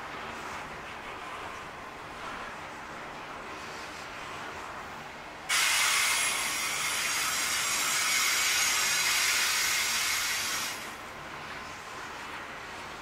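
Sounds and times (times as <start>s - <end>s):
train wagons rolling: 0.1s - 13.0s
loud steady hiss: 5.4s - 11.2s.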